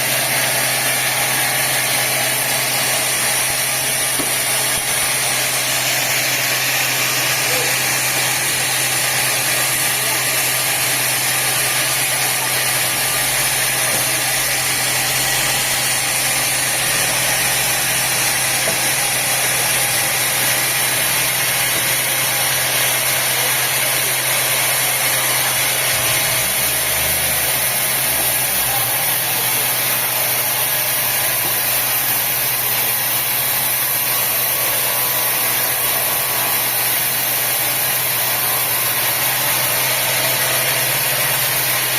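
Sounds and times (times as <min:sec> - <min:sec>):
sawmill machinery running: 0:00.0 - 0:41.9.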